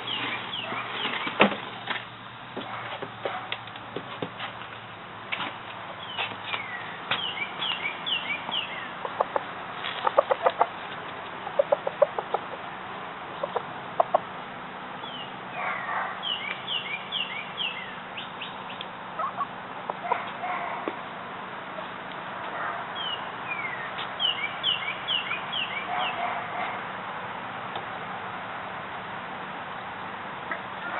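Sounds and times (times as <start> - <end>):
chickens clucking: 6.6 - 14.3, 18.7 - 21.0.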